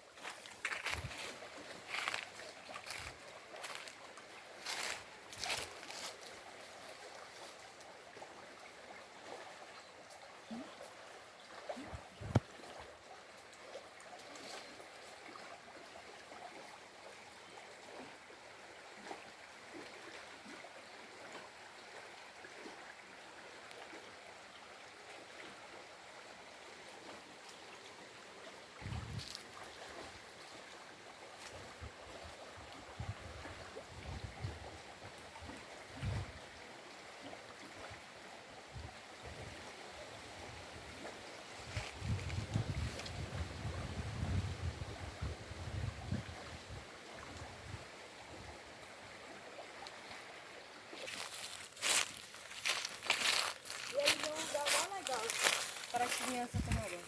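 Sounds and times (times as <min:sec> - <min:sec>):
stream water flowing: 0:00.0 - 0:57.0
wind buffeting microphone: 0:11.9 - 0:12.4, 0:28.8 - 0:29.4, 0:32.9 - 0:34.8, 0:35.9 - 0:36.4, 0:41.6 - 0:47.9, 0:54.1 - 0:57.0.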